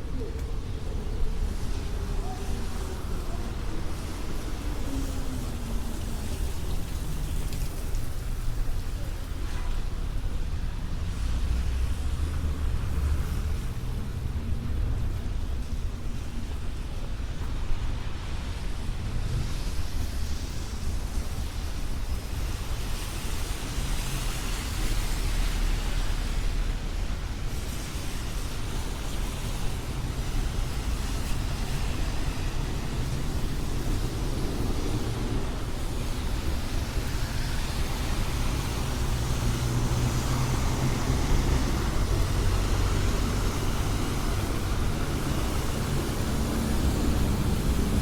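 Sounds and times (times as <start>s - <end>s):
rain hissing: 0.0s - 16.1s, 18.9s - 48.0s
low street rumble: 0.0s - 48.0s.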